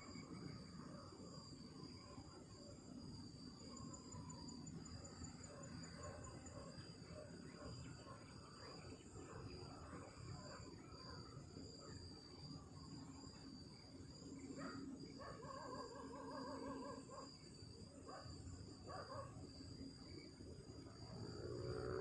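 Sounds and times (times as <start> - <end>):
night insects trilling: 0.0 - 22.0.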